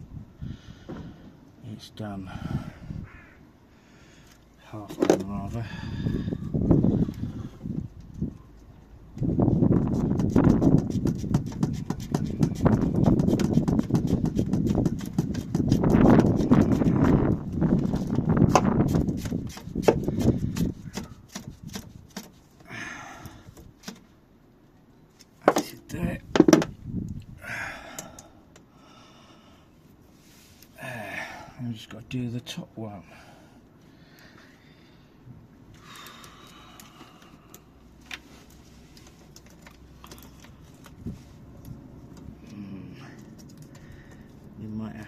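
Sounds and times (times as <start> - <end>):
hands clicking and tapping hose: 9.9 - 22.7, 23.5 - 24.1, 35.7 - 41.0, 43.2 - 44.4
handling clicks and knocks: 25.2 - 26.8
dull knock: 26.3 - 26.7.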